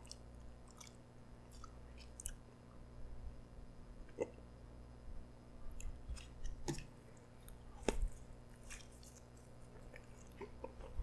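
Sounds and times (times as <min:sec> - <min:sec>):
chewing with wet mouth clicks: 0:00.0 - 0:02.4, 0:08.5 - 0:10.7.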